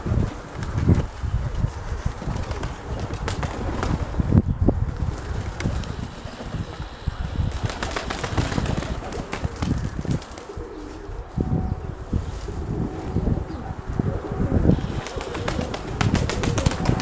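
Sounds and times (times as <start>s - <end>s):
wings flapping: 0.0s - 4.3s, 4.9s - 11.1s, 14.7s - 17.0s
wind rumbling on microphone: 0.0s - 17.0s
pigeons cooing: 4.9s - 17.0s.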